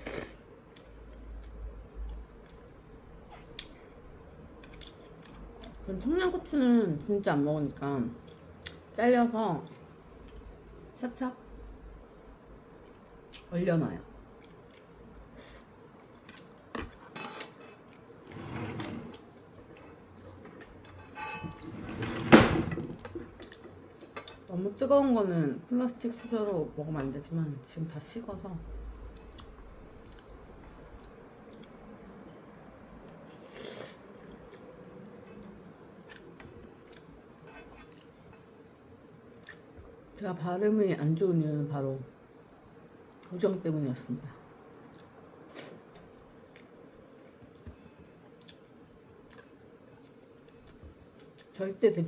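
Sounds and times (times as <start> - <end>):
utensils clinking on dishes: 19.8 - 22.9
person chewing: 48.3 - 51.5.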